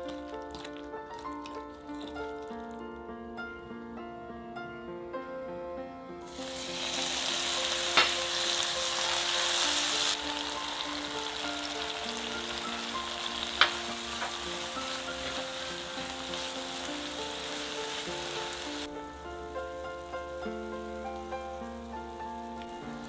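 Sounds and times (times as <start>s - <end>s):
tomatoes sizzling in frying pan: 6.2s - 23.0s
spatula stirring: 11.1s - 18.8s.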